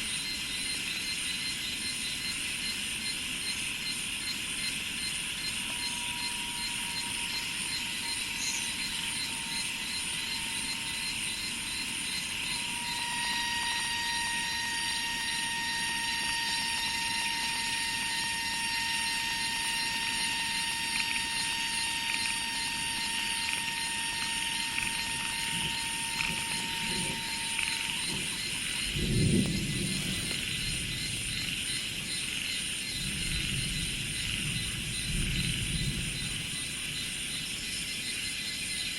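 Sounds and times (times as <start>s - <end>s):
insects trilling and chirping: 0.0s - 38.9s
buzzing tone: 4.6s - 32.3s.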